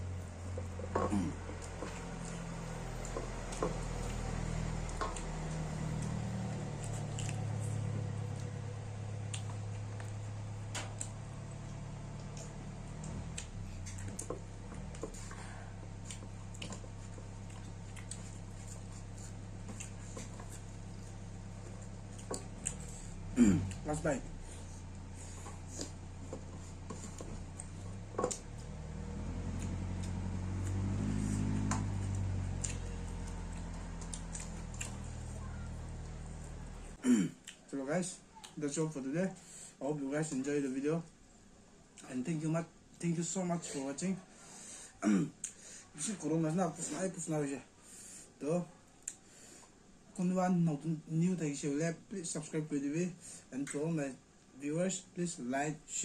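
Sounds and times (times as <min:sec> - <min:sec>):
steady low hum: 0:00.0 - 0:37.6
chewing with wet squelches: 0:00.2 - 0:37.7, 0:38.3 - 0:38.7, 0:48.9 - 0:49.3.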